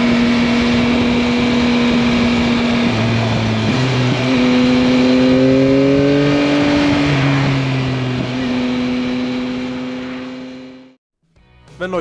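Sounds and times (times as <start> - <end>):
wind noise: 0.0 - 8.4
motorcycle engine running: 0.0 - 11.0
road noise: 0.0 - 11.0.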